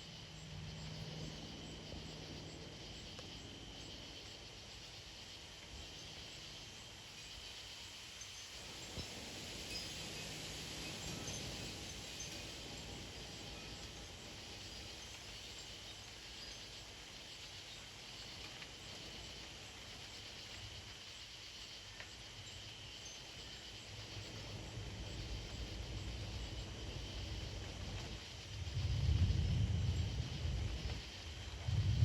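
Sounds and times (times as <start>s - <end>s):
insect chorus droning: 0.0s - 32.0s
wind rumbling on microphone: 26.5s - 32.0s.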